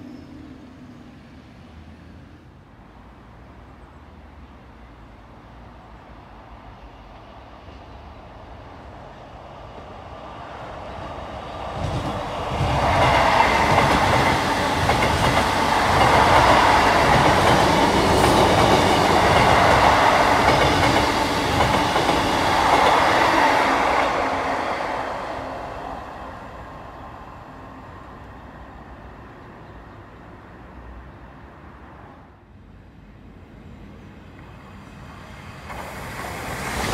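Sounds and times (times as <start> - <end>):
passenger train passing: 0.0 - 36.9
clickety-clack of train wheels: 10.9 - 24.4, 35.5 - 36.9.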